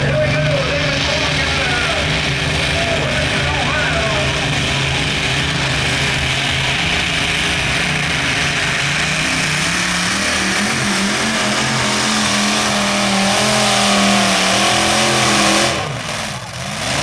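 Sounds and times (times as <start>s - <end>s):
tractor engine at full throttle: 0.0s - 17.0s.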